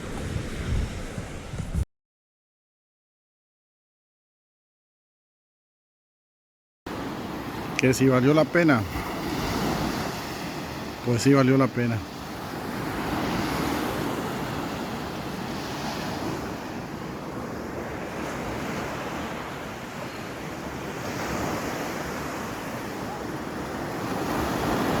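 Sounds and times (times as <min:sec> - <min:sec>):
ocean surf washing onto beach: 0:00.0 - 0:01.8, 0:06.9 - 0:25.0.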